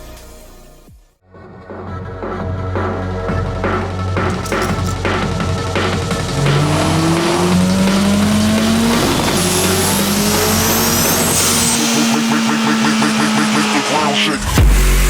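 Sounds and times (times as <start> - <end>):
car engine accelerating hard: 4.3 - 15.0.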